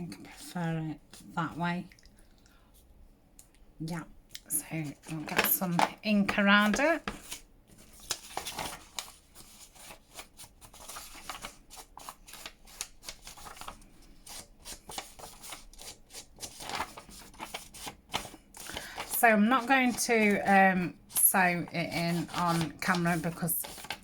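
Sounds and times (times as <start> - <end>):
paper rubbing and rustling: 4.8 - 20.5, 21.1 - 24.0.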